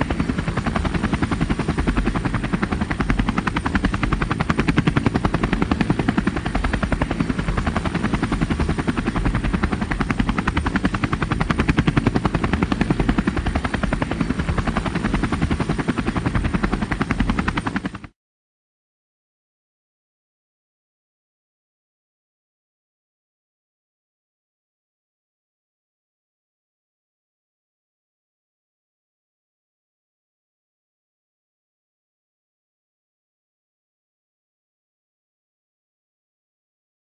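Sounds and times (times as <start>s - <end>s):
helicopter rotor chop: 0.0s - 18.2s.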